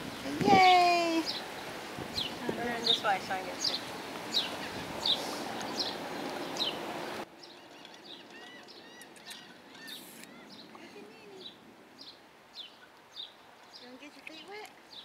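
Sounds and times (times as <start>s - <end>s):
bird chirping: 2.1s - 15.0s
other bird calls: 2.1s - 15.0s
steady hiss: 9.3s - 13.7s.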